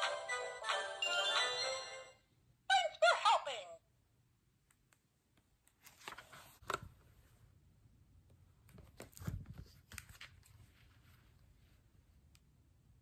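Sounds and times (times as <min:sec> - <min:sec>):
book handling rustles and knocks: 0:05.8 - 0:07.0, 0:08.7 - 0:11.0.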